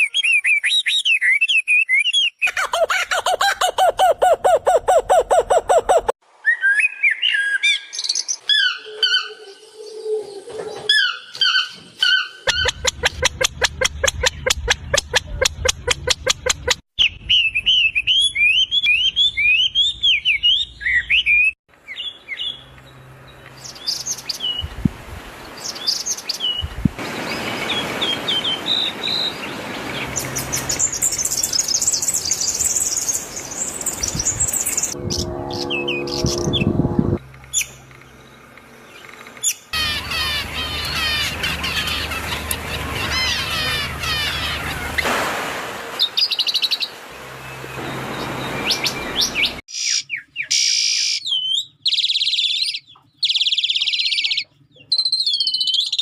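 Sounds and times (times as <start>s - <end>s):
birds chirping and trilling: 0.0s - 45.1s, 46.0s - 56.0s.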